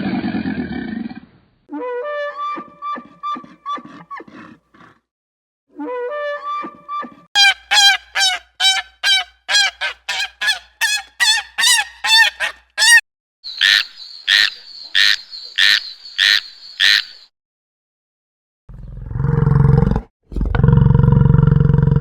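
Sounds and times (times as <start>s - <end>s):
bird honking: 7.4s - 13.0s
harsh high-pitched bird calls: 7.4s - 17.3s.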